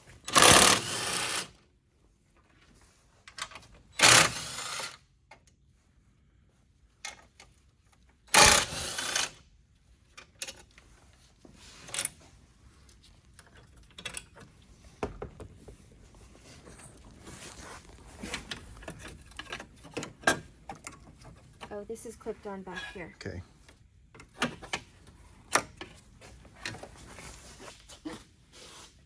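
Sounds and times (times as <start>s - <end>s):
mechanical clicks and rattles of tools: 0.2s - 1.5s, 3.2s - 5.6s, 7.0s - 9.4s, 12.9s - 14.6s, 18.2s - 21.7s.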